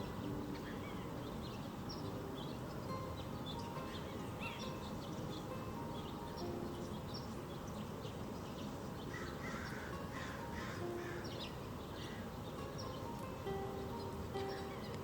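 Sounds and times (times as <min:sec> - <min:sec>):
small birds twittering: 0:00.0 - 0:15.0
harsh crow-like bird calls: 0:09.1 - 0:11.4.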